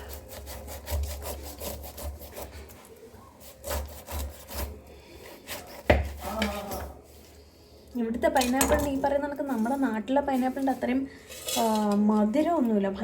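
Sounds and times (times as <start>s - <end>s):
knife cutting pineapple rind: 0.0s - 7.0s.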